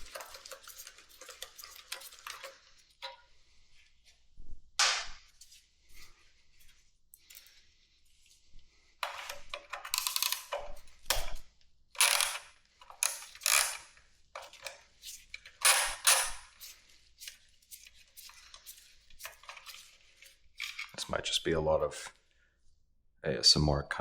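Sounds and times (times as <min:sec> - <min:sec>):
wrenches and sockets clinking: 0:09.0 - 0:11.4, 0:12.0 - 0:21.0.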